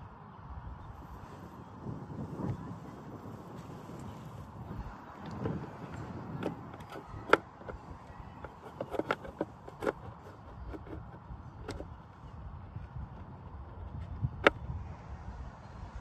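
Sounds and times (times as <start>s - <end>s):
plastic parts clicking together: 5.2s - 12.0s.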